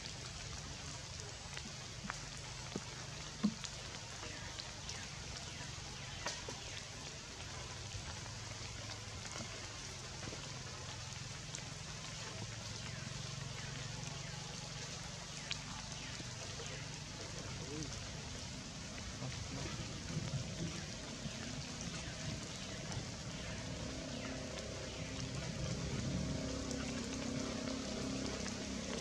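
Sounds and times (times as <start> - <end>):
rain on foliage: 0.0 - 29.0.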